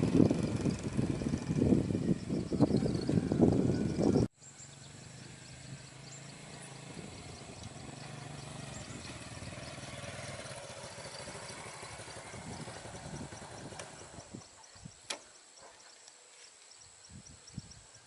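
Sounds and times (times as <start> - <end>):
small engine running: 0.0 - 14.4.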